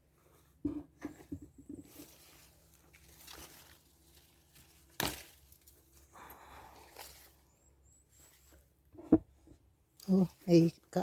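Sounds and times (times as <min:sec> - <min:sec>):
leaves and branches rustling: 0:01.8 - 0:08.6.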